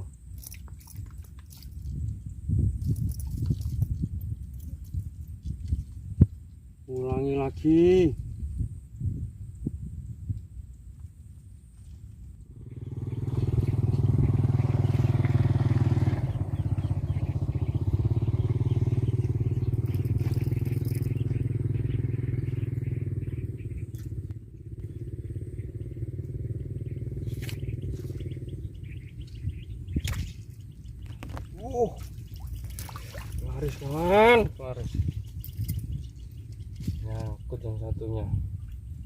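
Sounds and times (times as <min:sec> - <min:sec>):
small engine running: 0:12.5 - 0:29.9.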